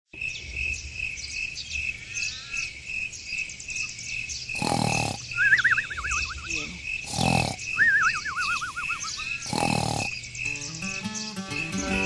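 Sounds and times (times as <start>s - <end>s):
insects chirping: 0.1s - 12.0s
small bird chirps: 0.2s - 12.0s
warbling bird call: 4.6s - 12.0s.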